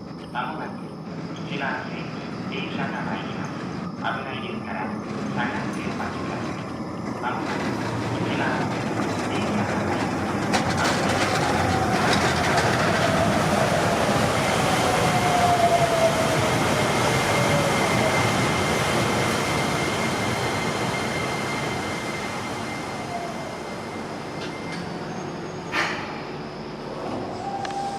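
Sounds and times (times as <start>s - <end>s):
train passing with falling whine: 0.0s - 27.9s.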